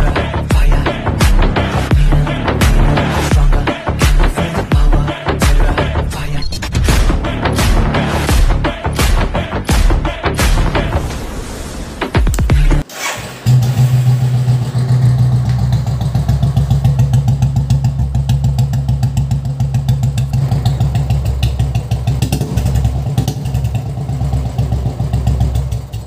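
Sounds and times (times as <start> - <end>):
motorcycle engine starting: 11.8 - 26.0
motorcycle engine idling: 13.5 - 26.0.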